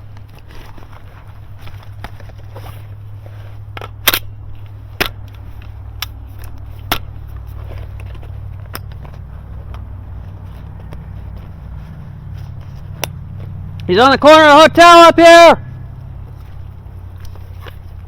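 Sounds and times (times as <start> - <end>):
steady low rumble: 0.0 - 14.8, 15.6 - 18.0.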